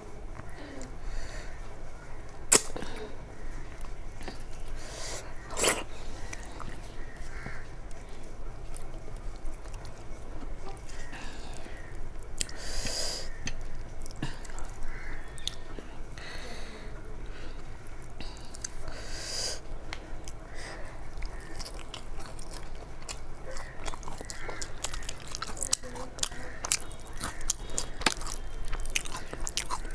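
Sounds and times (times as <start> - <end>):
chewing and smacking: 5.4 - 12.6, 19.9 - 29.9.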